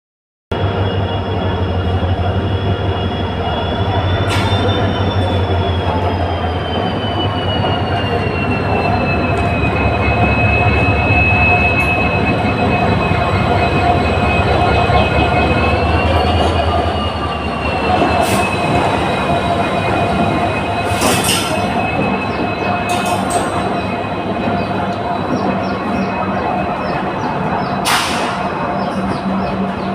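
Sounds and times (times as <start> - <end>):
low rumble of train: 0.5 - 29.9
train wheels squealing: 0.6 - 29.9
sharp clacks on rails: 20.8 - 23.8.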